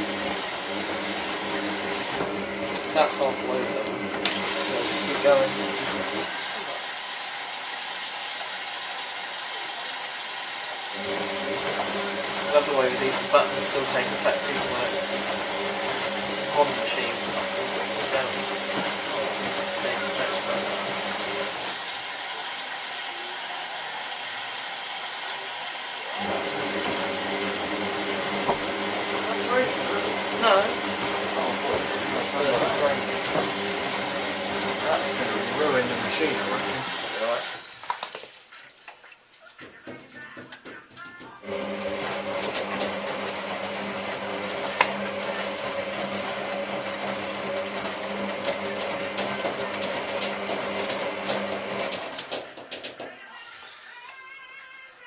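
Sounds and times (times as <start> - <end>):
drum motor humming: 0.0 - 7.0, 10.9 - 37.7, 39.8 - 53.1
washing machine hiss: 34.8 - 37.8.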